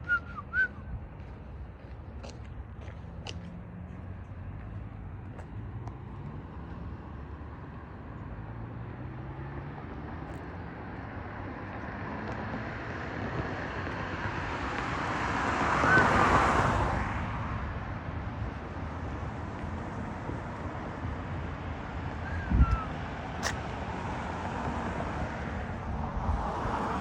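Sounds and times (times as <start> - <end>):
outdoor background noise: 0.0 - 27.0
vehicle passing by: 0.0 - 27.0.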